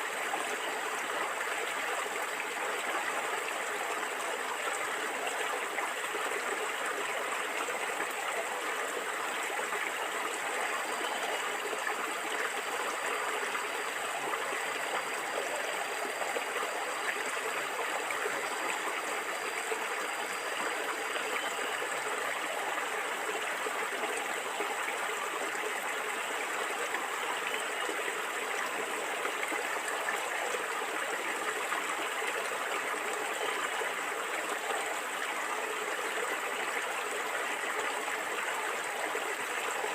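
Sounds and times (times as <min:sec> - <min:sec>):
stream water gurgling over stones: 0:00.0 - 0:39.9.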